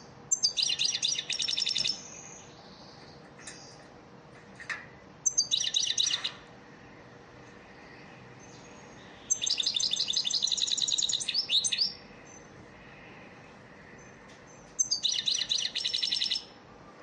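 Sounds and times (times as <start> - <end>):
bird twittering and trilling: 0.0 - 3.9, 5.2 - 6.5, 7.7 - 12.6, 13.9 - 16.5.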